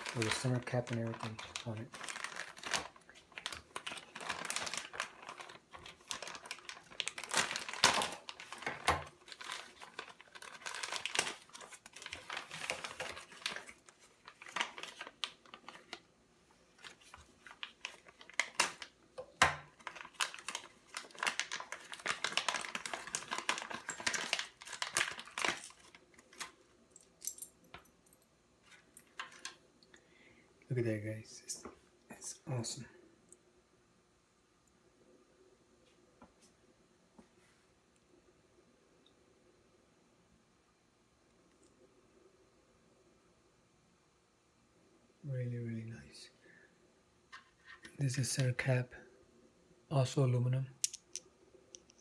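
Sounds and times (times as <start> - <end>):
packaging crinkling and rustling: 0.0 - 16.1, 16.7 - 27.5, 28.6 - 29.6.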